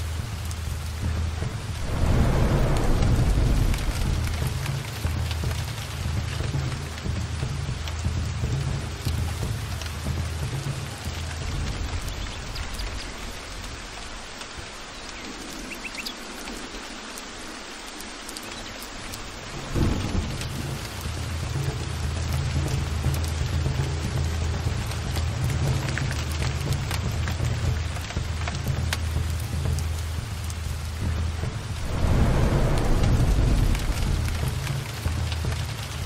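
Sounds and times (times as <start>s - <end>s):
rolling thunder rumble: 0.0s - 14.8s, 19.3s - 25.2s, 26.4s - 36.0s
heavy rain hissing: 0.0s - 36.0s
thunderclap: 0.1s - 7.1s, 19.4s - 22.3s, 30.7s - 36.0s.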